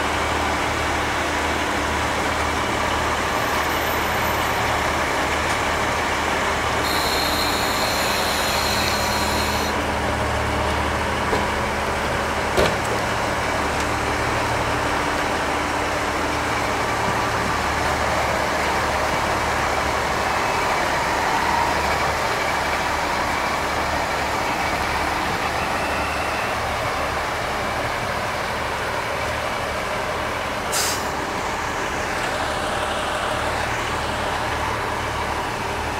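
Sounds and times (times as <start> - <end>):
diesel railcar engines idling: 0.0 - 35.9
high-pitched tone: 6.8 - 9.8.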